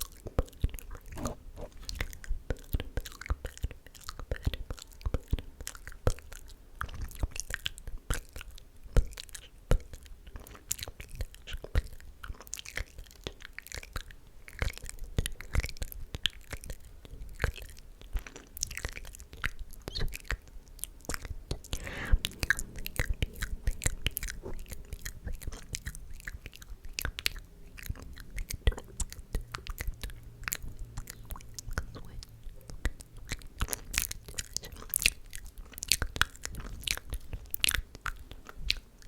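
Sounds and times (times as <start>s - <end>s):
breathy whisper: 21.5s - 26.4s.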